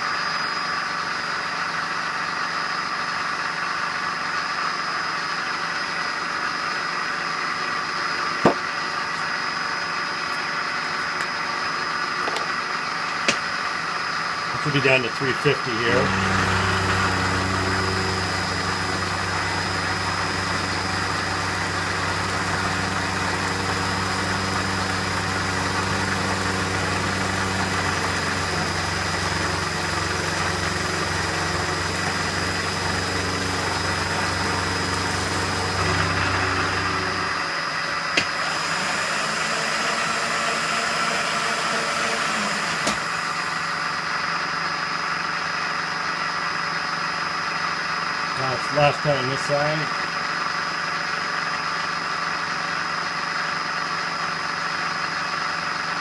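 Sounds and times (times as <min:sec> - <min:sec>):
metal lathe whine: 0:00.0 - 0:13.1, 0:13.8 - 0:45.5
lathe motor hum: 0:14.0 - 0:44.1.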